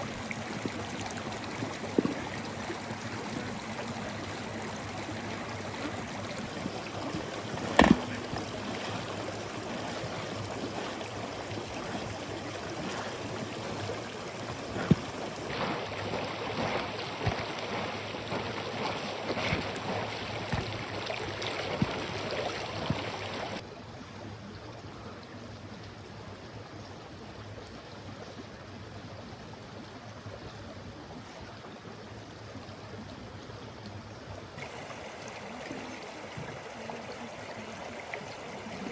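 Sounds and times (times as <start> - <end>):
mountain river running: 0.0 - 38.9
sharp knocks: 7.7 - 8.2.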